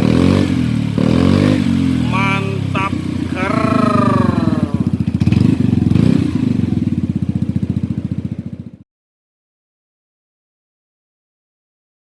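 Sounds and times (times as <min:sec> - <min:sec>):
scooter engine running: 0:02.9 - 0:08.8.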